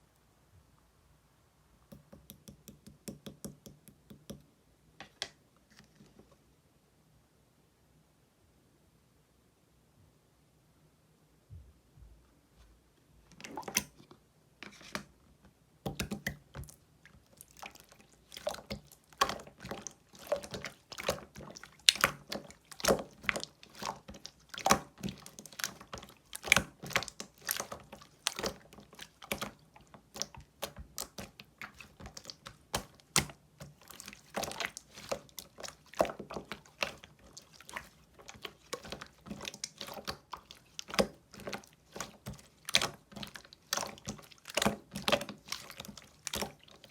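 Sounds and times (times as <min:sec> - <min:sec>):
slime squished by hand: 0:15.9 - 0:46.9.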